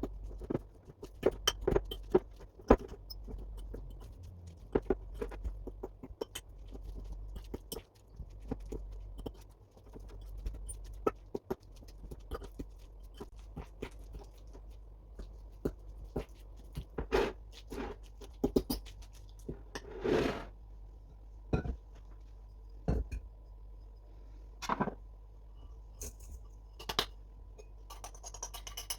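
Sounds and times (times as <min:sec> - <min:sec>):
utensils clicking and tapping in bowl: 0:00.0 - 0:19.9, 0:26.0 - 0:28.9.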